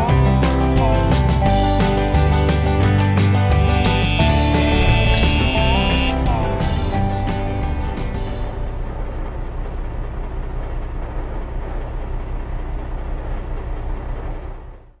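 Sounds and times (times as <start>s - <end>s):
vehicle road noise rumble: 0.0s - 15.0s.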